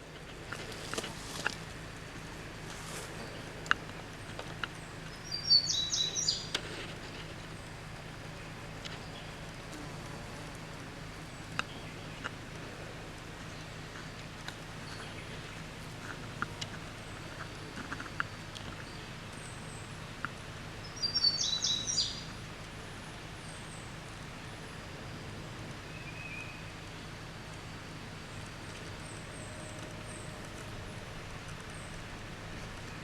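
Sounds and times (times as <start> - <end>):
low background hum: 0.0 - 33.0
bird chirping: 3.1 - 6.8, 13.4 - 22.4, 25.9 - 26.7.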